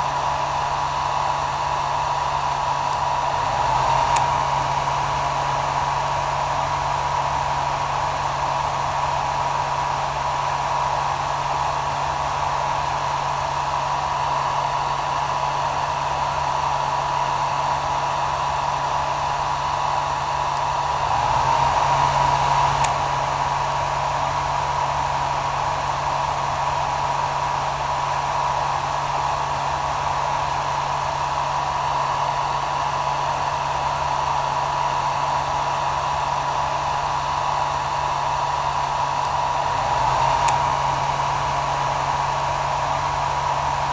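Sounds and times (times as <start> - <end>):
hair dryer blowing: 0.0 - 43.9.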